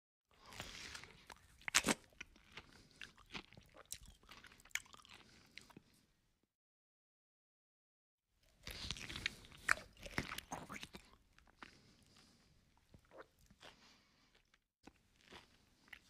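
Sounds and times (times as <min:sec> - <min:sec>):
chewing and crunching food: 0:00.3 - 0:06.1, 0:08.4 - 0:16.0.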